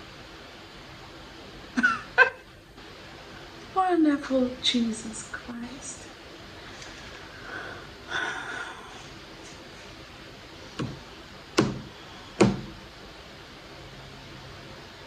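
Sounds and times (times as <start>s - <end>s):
soft breathy sound: 6.6s - 9.2s
sharp knocks or slaps: 10.8s - 11.0s, 11.6s - 12.8s.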